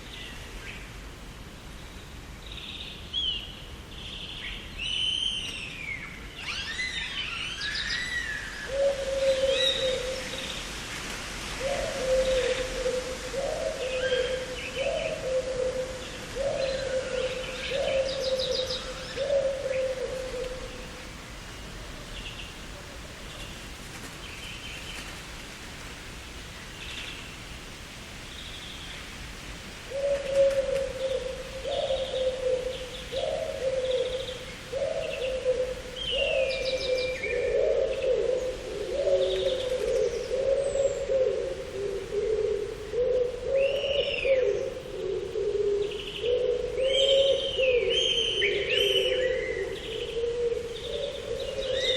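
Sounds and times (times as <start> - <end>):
birds chirping and trilling: 2.0 - 10.7, 11.6 - 21.0, 29.9 - 51.9
bird low cooing note: 6.5 - 10.6, 11.5 - 21.0, 29.9 - 51.9.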